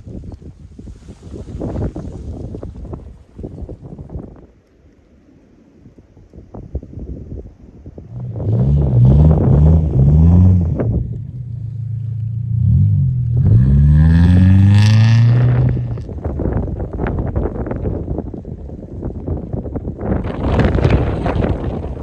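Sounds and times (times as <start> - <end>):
car engine revving: 8.1 - 16.2.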